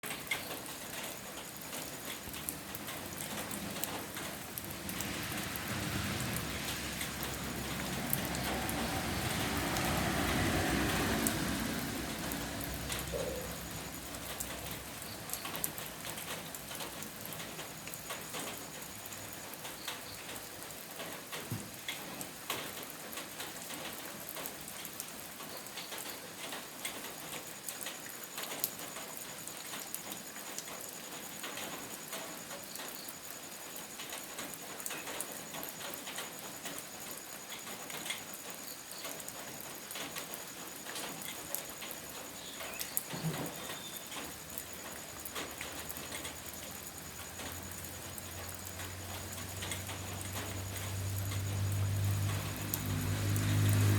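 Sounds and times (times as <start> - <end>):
raindrops ticking on a surface: 0.0 - 53.9
steady rainfall hiss: 0.0 - 53.9.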